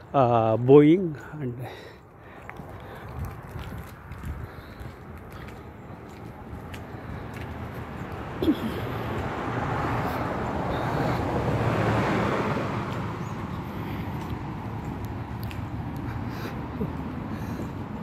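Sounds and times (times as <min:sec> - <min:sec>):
passing vehicle rushing: 0:06.4 - 0:18.0.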